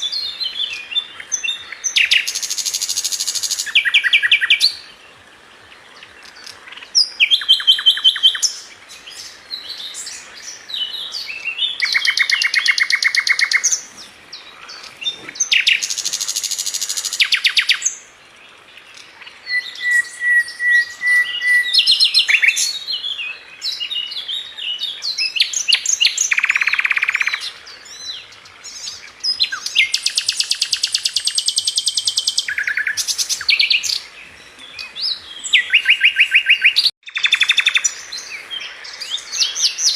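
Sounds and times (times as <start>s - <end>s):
songbird trilling and chattering: 6.2s - 17.9s, 25.0s - 27.5s, 28.7s - 39.9s.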